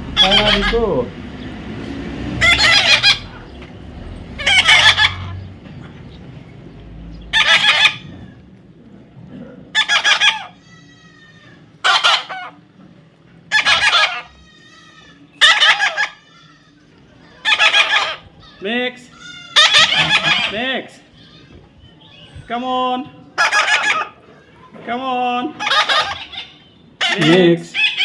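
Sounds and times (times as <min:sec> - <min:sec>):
parrot squawking harshly: 0:00.1 - 0:01.0, 0:02.4 - 0:03.4, 0:04.4 - 0:05.4, 0:07.3 - 0:08.2, 0:09.7 - 0:12.6, 0:13.5 - 0:16.8, 0:17.4 - 0:21.4, 0:23.4 - 0:24.2, 0:25.6 - 0:28.0.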